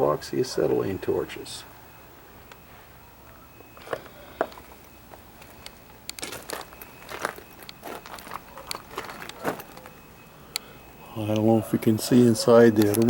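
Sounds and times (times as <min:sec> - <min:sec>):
footsteps crunching on gravel: 0:03.6 - 0:10.1.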